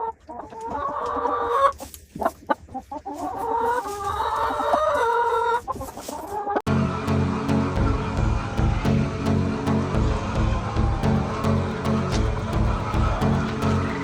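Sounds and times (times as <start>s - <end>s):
chickens clucking: 0.0s - 6.7s, 11.2s - 14.0s.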